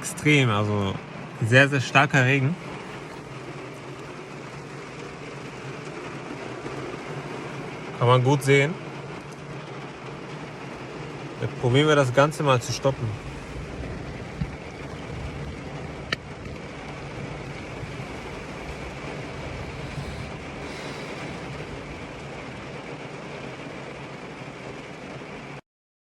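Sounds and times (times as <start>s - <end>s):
heavy rain falling: 0.0s - 25.6s.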